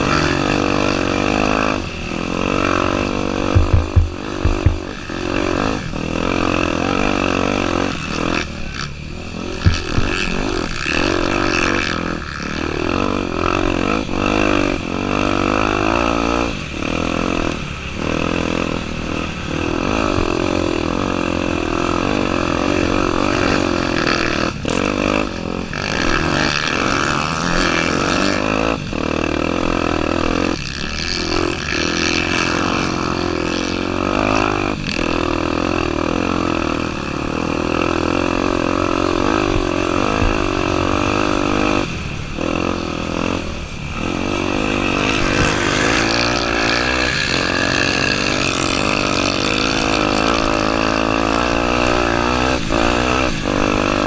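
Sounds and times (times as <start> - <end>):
motorcycle engine revving: 0.0 - 54.0
low thump: 3.5 - 4.9.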